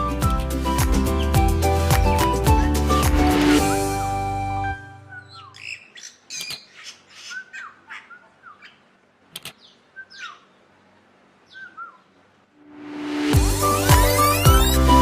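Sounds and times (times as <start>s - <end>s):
bird squawks and chirps: 5.0s - 8.9s, 9.6s - 10.6s, 11.5s - 12.1s, 13.6s - 15.0s
sharp clicks: 9.3s - 9.6s.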